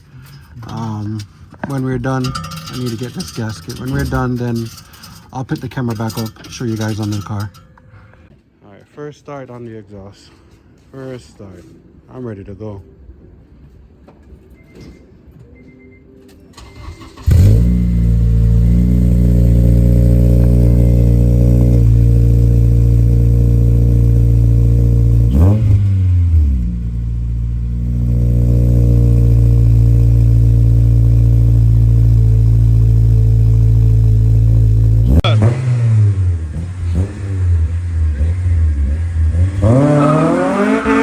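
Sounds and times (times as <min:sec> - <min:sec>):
car engine starting and idling: 0:00.0 - 0:07.7, 0:16.5 - 0:41.0
faint beeps: 0:14.5 - 0:16.6.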